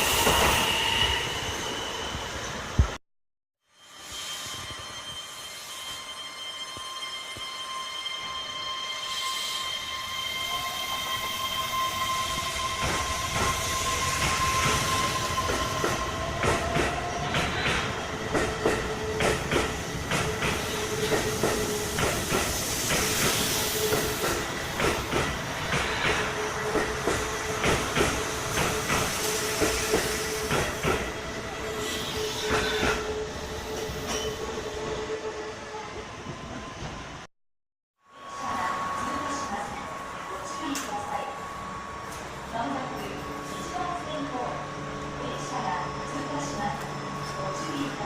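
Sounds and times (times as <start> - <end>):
train hum: 9.1 - 37.3, 38.1 - 48.0.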